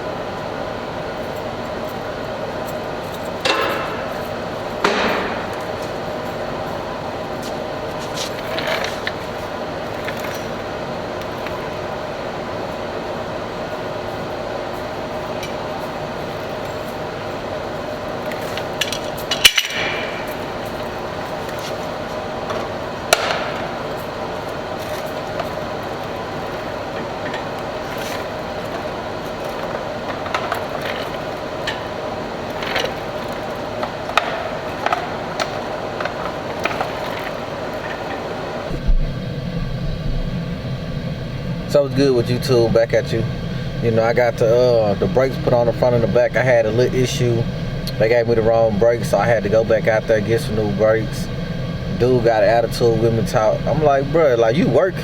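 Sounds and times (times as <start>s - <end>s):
steady mechanical hum: 0.0s - 55.0s
metal tools clinking: 24.8s - 38.4s.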